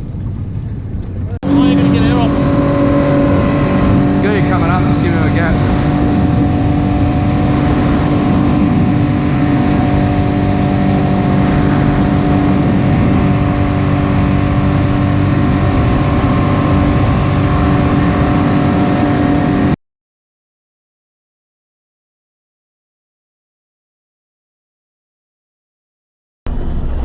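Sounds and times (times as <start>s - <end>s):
boat motor running: 0.0s - 19.8s, 26.5s - 27.0s
water noise: 0.0s - 19.8s, 26.5s - 27.0s.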